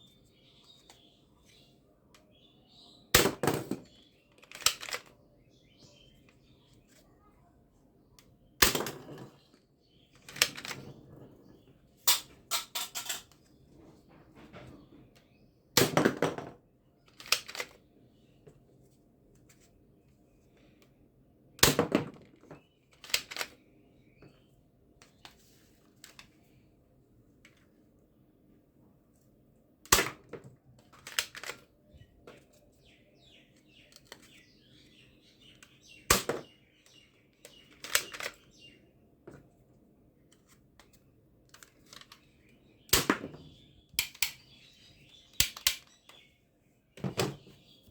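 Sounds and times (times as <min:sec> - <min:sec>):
toy guns clicking: 0:04.3 - 0:05.1, 0:45.4 - 0:45.9.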